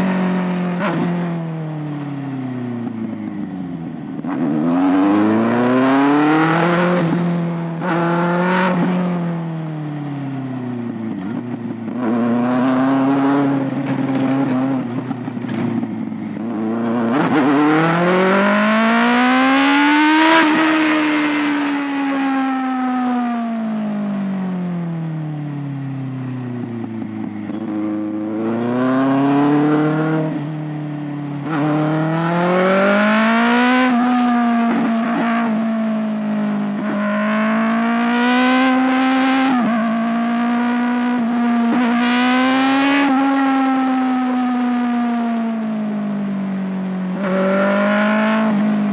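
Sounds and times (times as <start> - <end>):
motorcycle engine revving: 0.0 - 24.8, 26.3 - 48.9.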